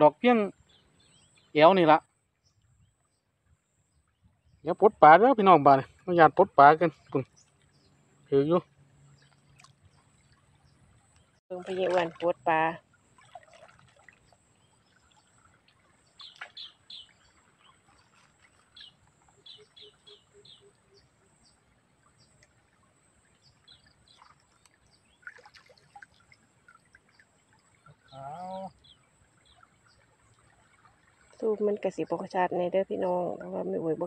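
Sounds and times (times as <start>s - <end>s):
stream water flowing: 4.0s - 34.0s
faint bird chirps: 14.3s - 22.5s, 26.1s - 32.2s.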